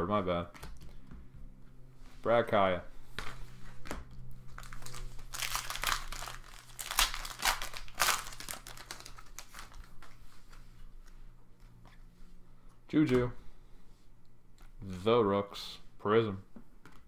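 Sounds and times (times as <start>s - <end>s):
cards rustling: 3.1s - 12.1s
plastic wrapper tearing and crinkling: 4.2s - 10.2s.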